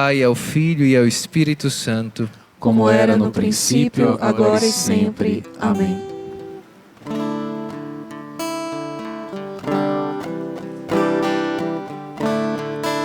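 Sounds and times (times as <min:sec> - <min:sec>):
acoustic guitar strumming chords: 0:02.9 - 0:13.0.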